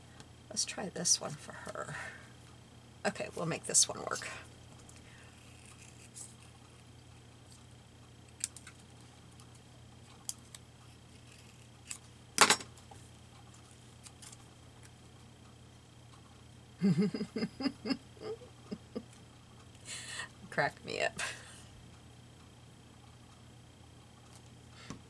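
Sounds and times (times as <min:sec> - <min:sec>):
person chuckling softly: 0:16.8 - 0:19.2.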